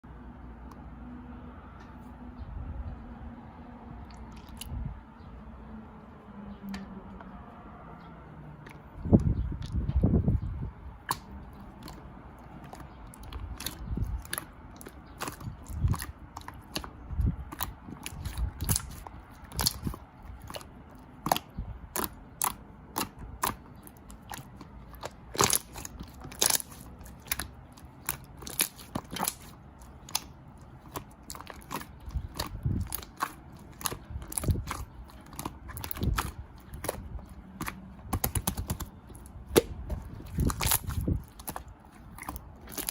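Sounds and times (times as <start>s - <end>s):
grapes being chewed: 3.9s - 5.0s, 8.5s - 42.9s.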